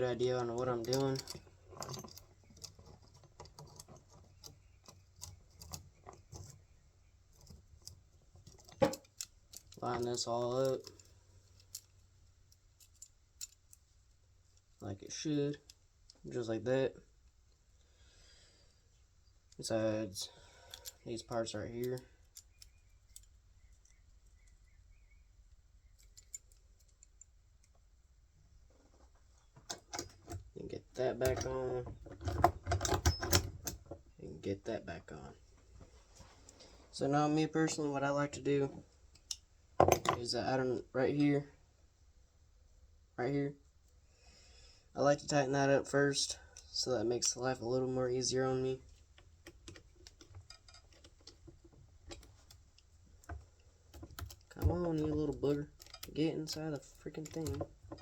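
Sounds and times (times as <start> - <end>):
chainsaw parts clicking: 7.4 - 13.8, 20.4 - 24.0, 48.8 - 58.0.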